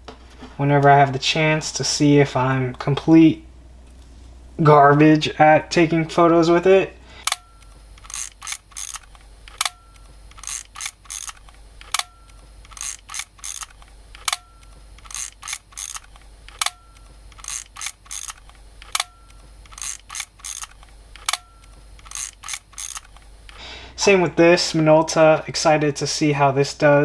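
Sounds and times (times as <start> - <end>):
film advance ratcheting clicks: 7.2 - 23.6
camera shutter click: 8.0 - 12.1, 12.7 - 14.4, 17.4 - 23.2.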